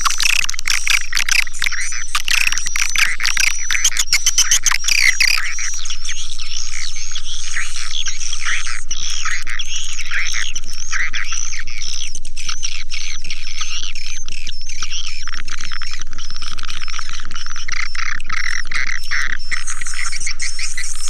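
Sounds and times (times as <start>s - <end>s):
swiftlets twittering chorus: 0.0s - 5.8s.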